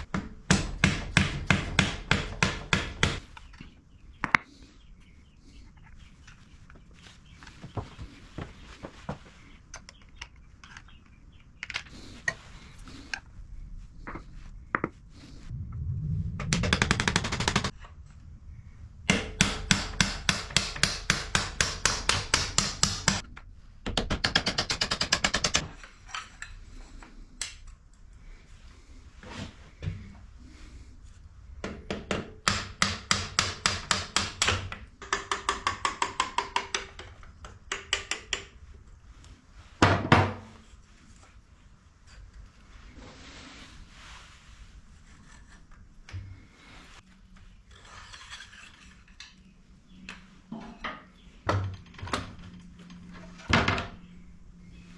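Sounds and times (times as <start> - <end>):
continuous rattling: 15.5 - 17.9.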